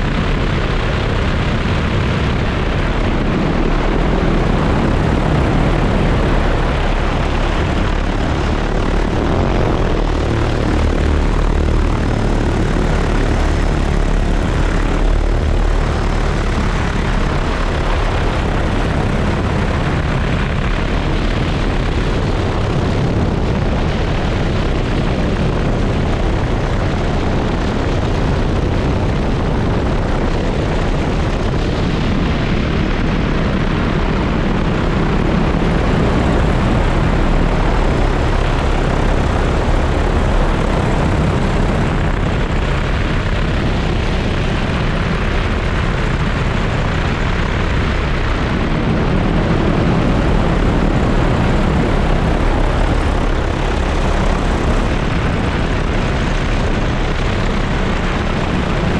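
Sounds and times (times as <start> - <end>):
drone propellers whirring: 1.7 - 21.4, 35.2 - 44.6, 48.1 - 56.0.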